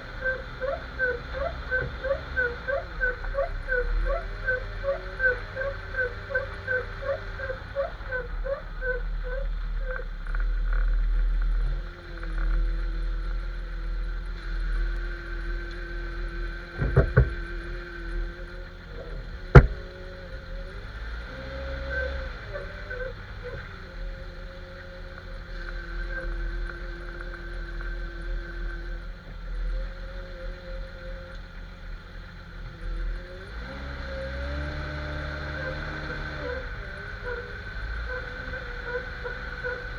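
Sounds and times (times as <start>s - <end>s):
car running rumble with whine: 0.0s - 39.9s
squeaks: 16.7s - 25.0s
knocks: 16.8s - 17.4s, 19.5s - 19.9s
sharp clunk: 19.5s - 19.9s.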